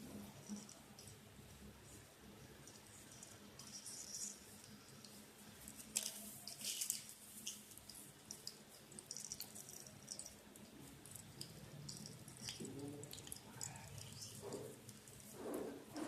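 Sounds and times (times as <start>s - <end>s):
oil crackling in a pan: 2.7s - 15.4s.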